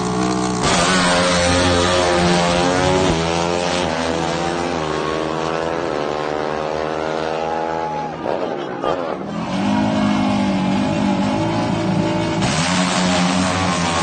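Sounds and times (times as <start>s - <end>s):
drag-racing engine accelerating: 0.0s - 14.0s.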